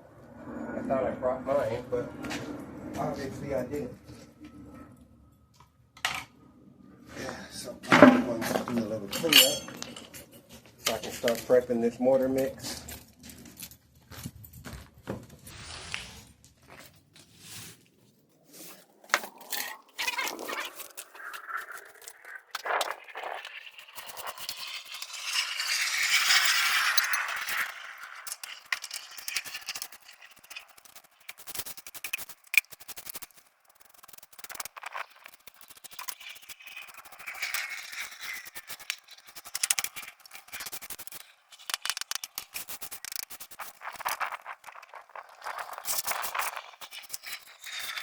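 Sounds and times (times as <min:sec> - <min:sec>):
broom sweeping: 0:15.5 - 0:16.3, 0:17.2 - 0:17.8
scraping on tiles: 0:15.5 - 0:48.0
small debris clicks: 0:19.0 - 0:48.0.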